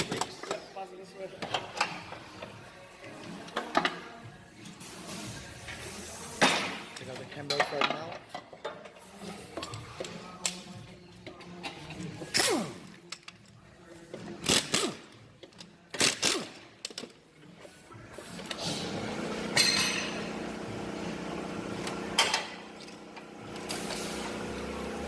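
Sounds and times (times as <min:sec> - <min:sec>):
steady mechanical hum: 0:16.4 - 0:25.0.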